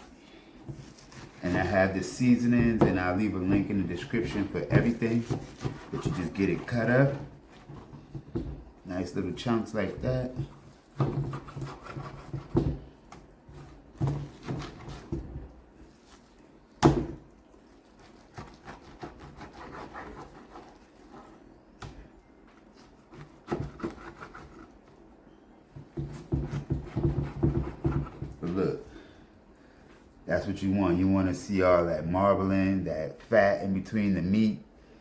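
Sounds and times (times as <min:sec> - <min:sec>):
knife scraping strokes: 0:00.8 - 0:02.5, 0:03.4 - 0:08.0, 0:10.4 - 0:12.6, 0:17.7 - 0:21.4, 0:22.7 - 0:24.8.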